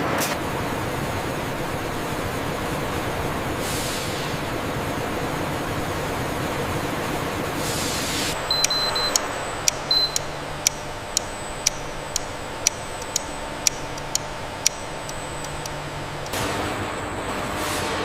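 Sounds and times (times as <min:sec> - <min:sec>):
low steady hum: 0:08.4 - 0:16.4
regular ticking clicks: 0:08.4 - 0:16.4
short high beeps: 0:08.4 - 0:16.4.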